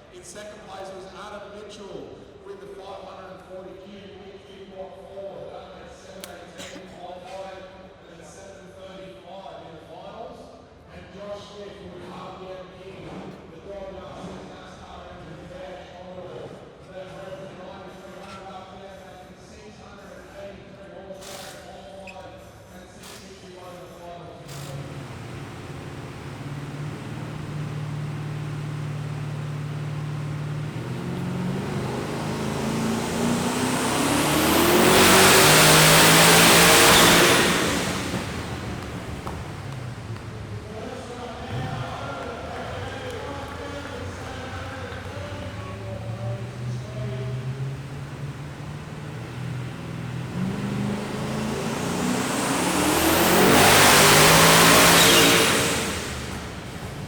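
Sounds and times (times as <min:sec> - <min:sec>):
engine revving on dyno: 0:24.5 - 0:40.8, 0:42.6 - 0:57.0.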